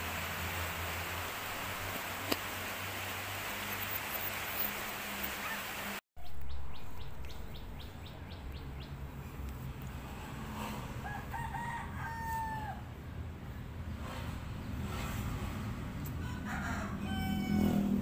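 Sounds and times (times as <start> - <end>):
steady rain hiss: 0.0 - 6.0
bird chirping: 6.2 - 9.0.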